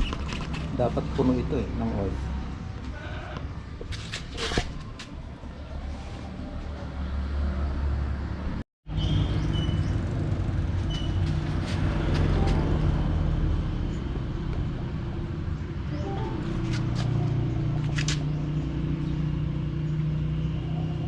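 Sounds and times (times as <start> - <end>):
vehicle engine hum: 4.8 - 21.0.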